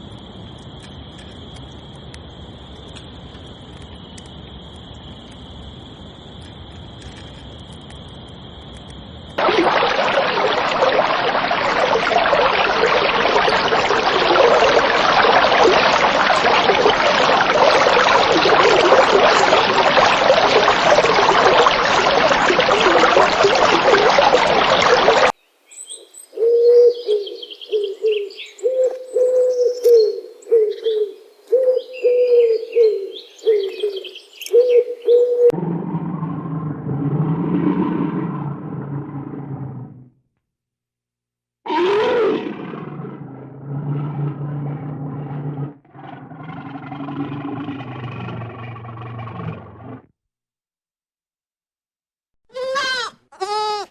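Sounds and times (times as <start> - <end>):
small birds chirping: 25.4 - 35.2
pigeons cooing: 26.4 - 35.6.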